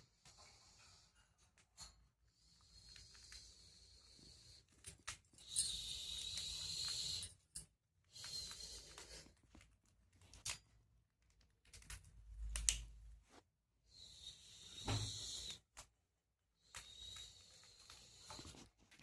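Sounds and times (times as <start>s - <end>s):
parrot hissing raspily: 5.4s - 7.4s, 13.9s - 15.6s.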